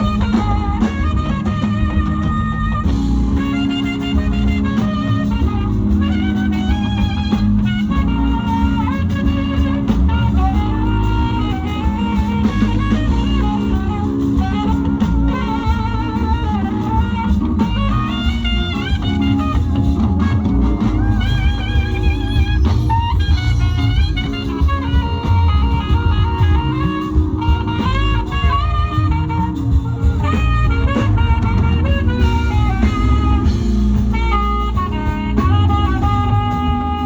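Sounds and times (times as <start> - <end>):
bass guitar: 0.0 - 37.0
drum kit beat: 0.0 - 37.0
sliding lead melody: 0.0 - 37.0.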